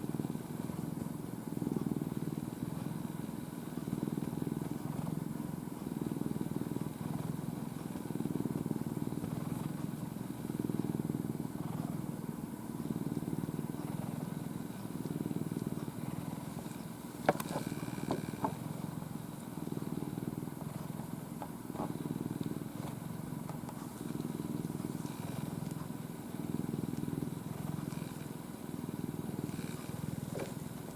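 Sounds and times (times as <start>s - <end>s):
cat purring: 0.0s - 30.9s.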